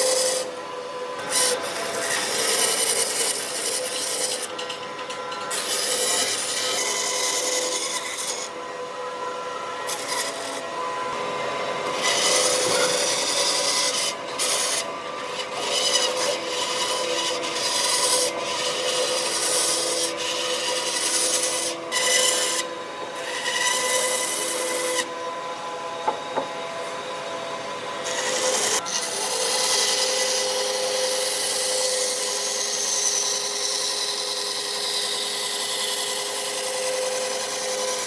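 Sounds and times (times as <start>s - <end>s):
tool rasping on wood: 0.0s - 0.4s, 1.2s - 4.7s, 11.8s - 25.1s.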